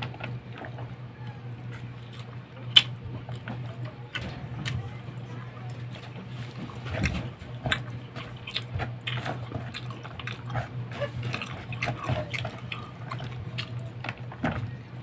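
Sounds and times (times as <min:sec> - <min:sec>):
steady low hum: 0:00.0 - 0:15.0
man chewing and lip-smacking: 0:07.0 - 0:14.5.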